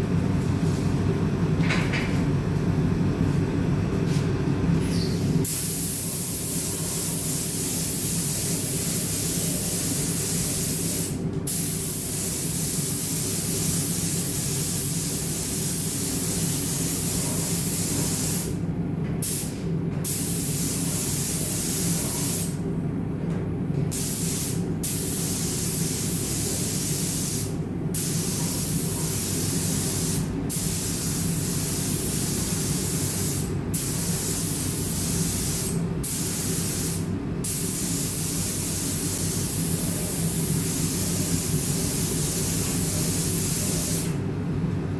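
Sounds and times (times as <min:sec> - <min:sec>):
steady low hum: 0:00.0 - 0:44.9
paint spray gun hissing: 0:05.2 - 0:18.5, 0:24.0 - 0:44.1.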